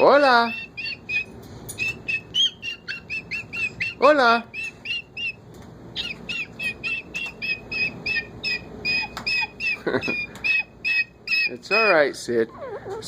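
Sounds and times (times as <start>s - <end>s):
parrot chirping: 0.0s - 13.0s
lower parrot call: 6.0s - 12.0s.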